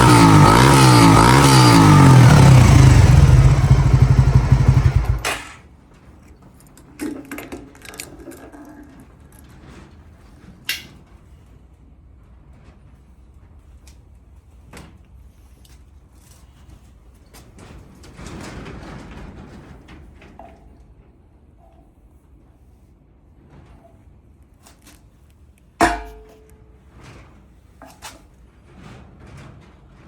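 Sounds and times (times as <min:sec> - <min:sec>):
motorcycle engine running: 0:00.0 - 0:05.6.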